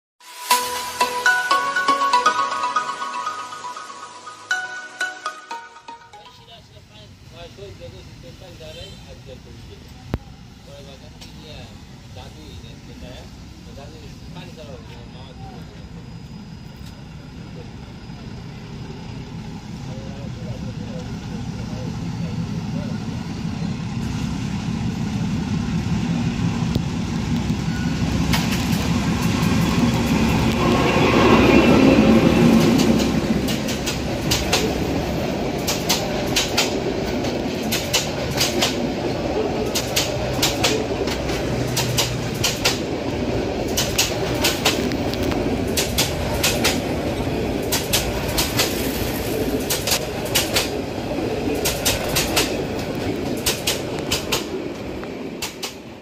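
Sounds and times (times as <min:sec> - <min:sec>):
diesel locomotive passing: 0:00.4 - 0:56.0
wheels clacking over rail joints: 0:31.8 - 0:56.0.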